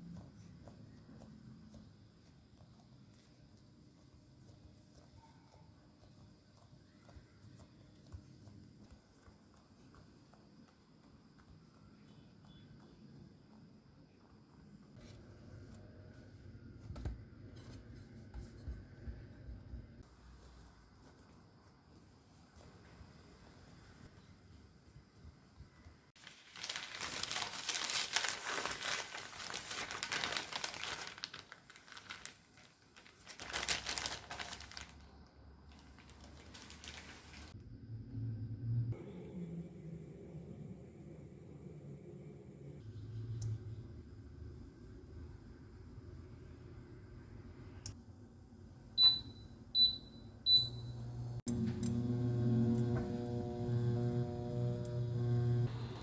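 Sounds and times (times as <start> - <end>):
crinkling and rustling handling: 0.0 - 13.6, 26.1 - 37.6
crackles: 26.1 - 37.7
microwave keypad beeping: 49.0 - 51.1
microwave oven humming: 49.0 - 56.0.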